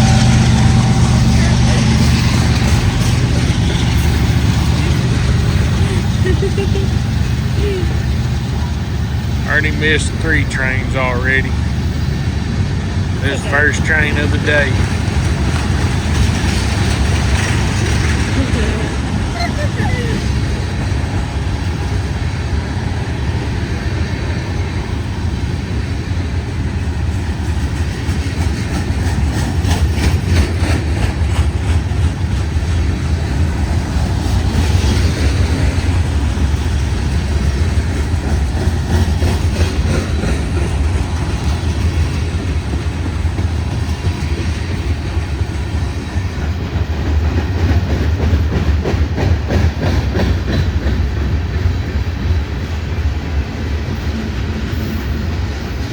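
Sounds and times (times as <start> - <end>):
freight train rumbling: 0.0 - 55.9
wheels clicking over rail joints: 14.8 - 21.2, 27.1 - 53.4.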